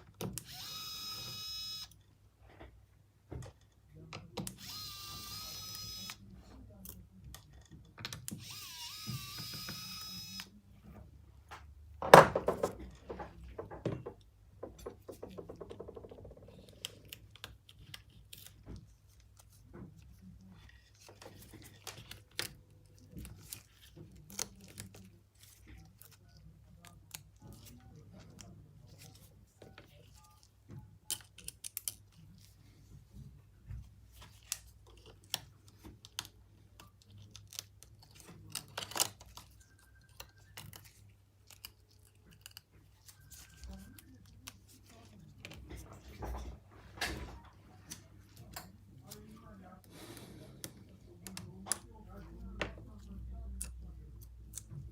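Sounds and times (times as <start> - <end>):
small electric tool whining: 0.4 - 1.9, 4.5 - 6.2, 8.4 - 10.5.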